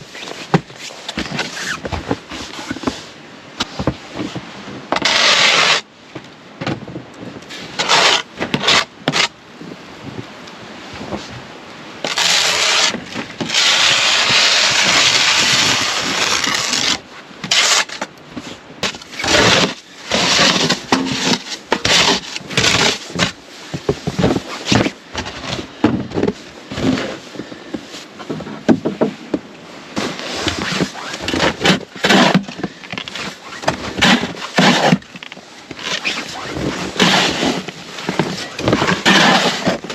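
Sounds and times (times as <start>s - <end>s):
scraping and knocking: 18.8s - 39.9s.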